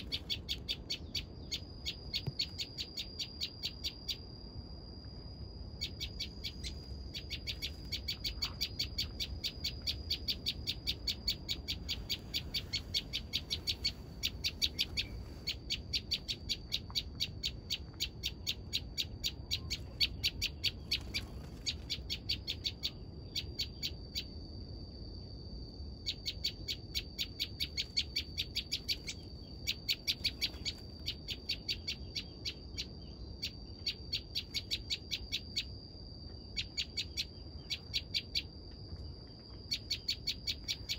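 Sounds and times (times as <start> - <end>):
bird ticking chip notes: 0.0 - 4.3, 5.8 - 21.3.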